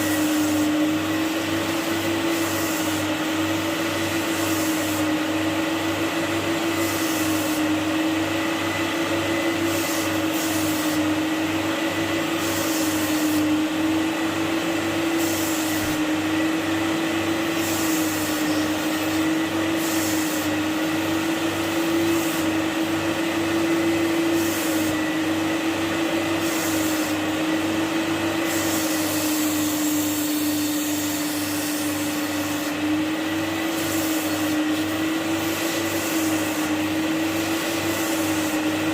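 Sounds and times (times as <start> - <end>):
vacuum motor humming: 0.0 - 38.9
high hiss of suction: 28.4 - 32.9.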